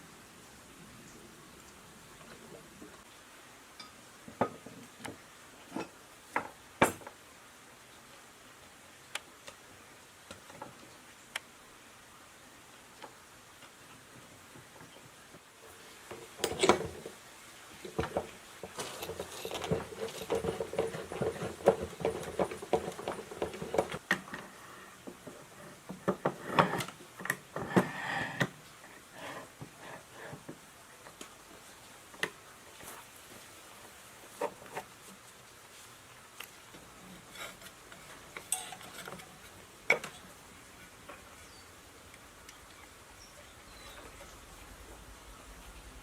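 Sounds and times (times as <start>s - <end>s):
rubbing or scraping: 18.0s - 24.0s, 37.0s - 39.7s
clicks and clinks of small parts: 38.4s - 39.3s.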